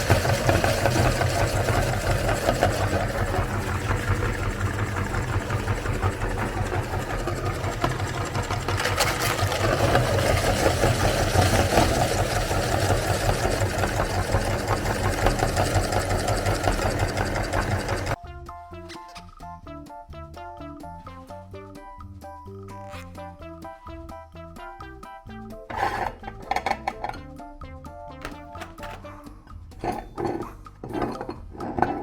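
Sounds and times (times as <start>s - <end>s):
electric meat grinder motor hum: 0.0s - 18.2s.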